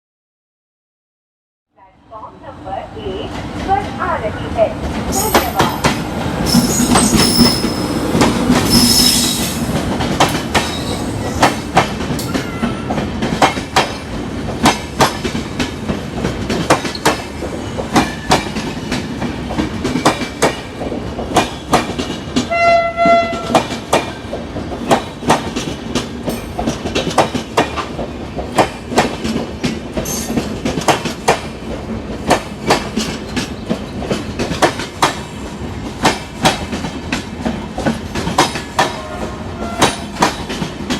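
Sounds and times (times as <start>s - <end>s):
train wheels clattering over rail joints: 4.8s - 39.0s, 39.6s - 40.9s
train horn blast: 12.3s - 13.0s, 22.5s - 23.6s, 38.8s - 40.2s.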